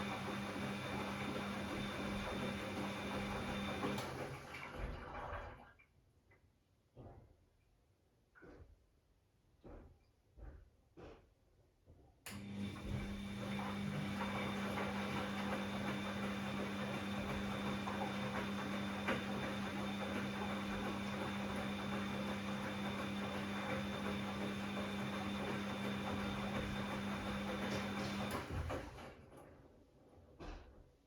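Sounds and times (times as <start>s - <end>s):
washing machine humming: 0.0s - 5.7s, 12.3s - 29.6s.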